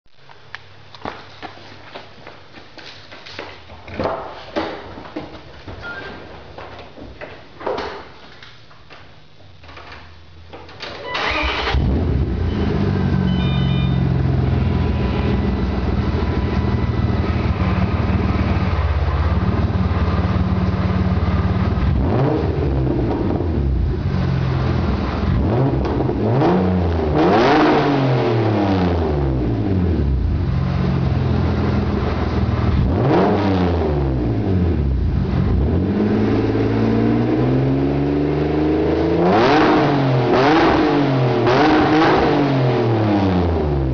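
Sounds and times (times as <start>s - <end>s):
car engine starting and revving: 11.2s - 43.9s.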